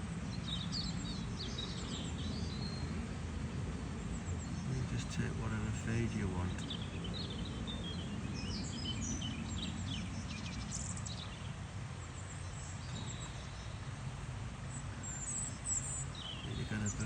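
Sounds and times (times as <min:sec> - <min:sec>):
small songbirds chirping: 0:00.0 - 0:17.0
low background rumble: 0:12.1 - 0:17.0.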